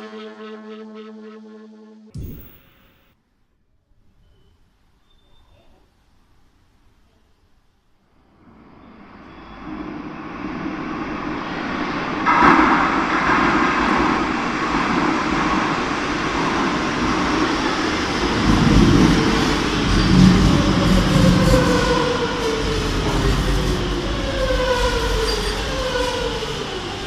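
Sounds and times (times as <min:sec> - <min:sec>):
subway train running in tunnel: 0:08.0 - 0:27.0.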